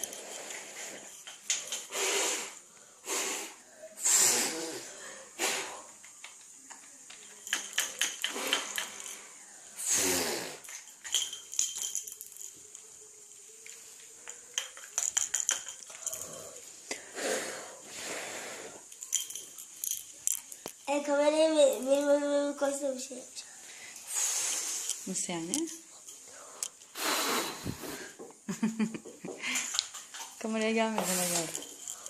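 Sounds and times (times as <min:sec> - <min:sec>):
breathy blowing: 0:01.7 - 0:06.0, 0:15.9 - 0:18.9, 0:23.6 - 0:25.0, 0:26.2 - 0:28.2
plastic bubble toys clicking: 0:06.0 - 0:09.2, 0:13.6 - 0:16.2
children's wordless voices: 0:20.8 - 0:23.6.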